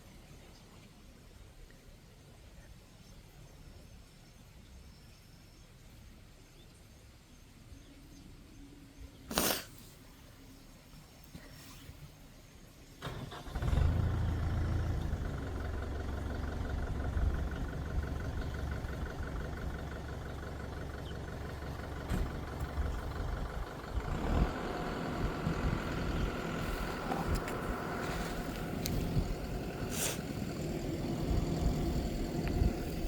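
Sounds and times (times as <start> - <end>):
engine starting and humming: 13.0 - 33.0.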